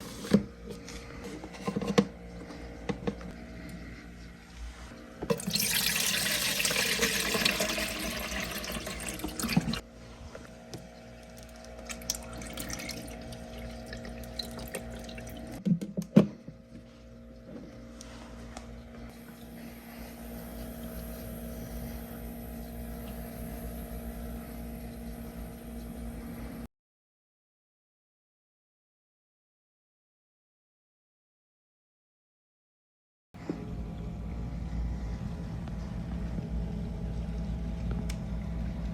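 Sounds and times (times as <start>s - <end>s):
steady low hum: 0.0s - 26.7s, 33.4s - 38.9s
water running: 5.3s - 9.8s, 11.2s - 15.6s.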